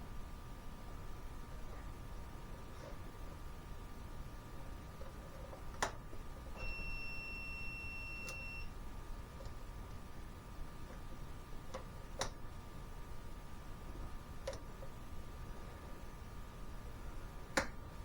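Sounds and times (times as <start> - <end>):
steady high beep: 6.6 - 8.7.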